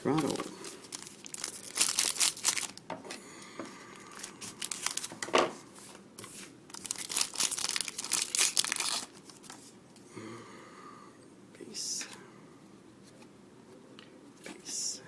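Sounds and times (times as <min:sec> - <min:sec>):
foil wrapper crinkling and tearing: 0:00.0 - 0:02.8, 0:04.0 - 0:05.3, 0:06.7 - 0:09.6.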